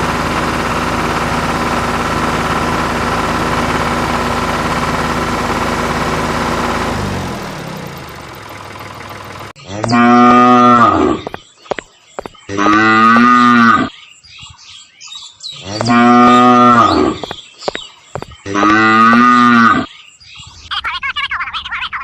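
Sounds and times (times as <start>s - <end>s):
cattle mooing: 9.6s - 11.3s, 12.5s - 13.9s, 15.6s - 17.3s, 18.4s - 19.9s.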